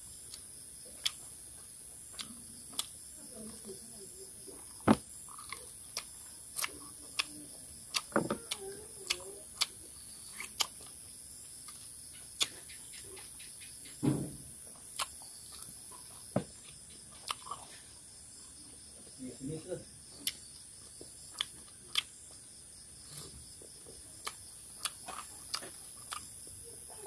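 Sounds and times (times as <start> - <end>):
person chewing food: 0.2 - 3.0, 4.4 - 11.0, 14.8 - 18.5, 20.2 - 26.5.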